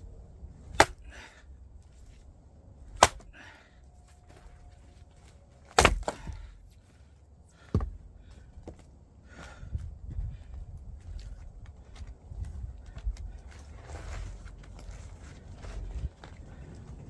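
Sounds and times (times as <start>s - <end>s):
axe chopping firewood: 0.7s - 1.4s, 2.9s - 3.6s, 5.7s - 6.6s, 7.6s - 8.0s.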